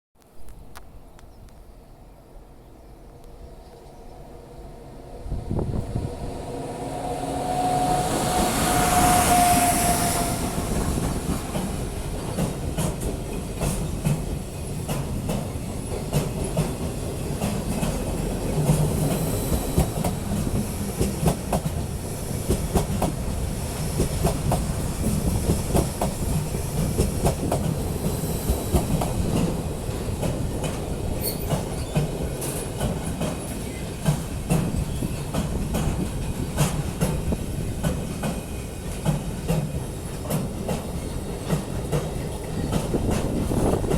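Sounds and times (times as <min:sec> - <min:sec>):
train wheels clicking over rail joints: 0:10.6 - 0:43.9
wheel squeal: 0:31.2 - 0:32.0.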